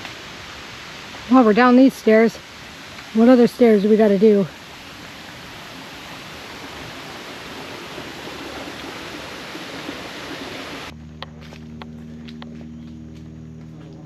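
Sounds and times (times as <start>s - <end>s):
rain hissing on forest: 0.0s - 11.0s.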